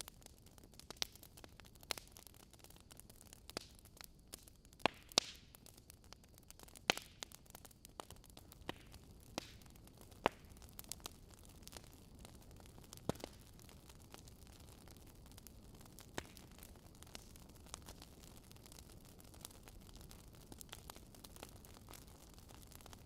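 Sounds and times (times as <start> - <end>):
fire crackling and popping: 0.0 - 23.0
hiss of flames: 8.3 - 23.0.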